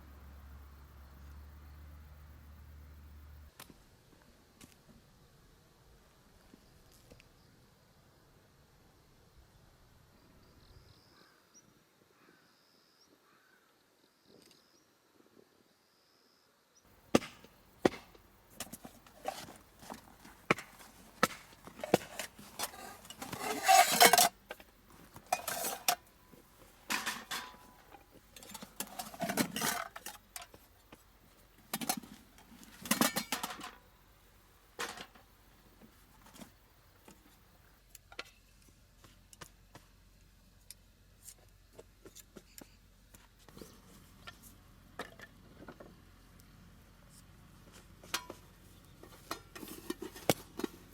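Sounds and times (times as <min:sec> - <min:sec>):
cookware and utensils clattering: 0:18.6 - 0:24.6, 0:25.2 - 0:26.1, 0:26.9 - 0:30.5, 0:31.7 - 0:33.8, 0:34.8 - 0:35.2.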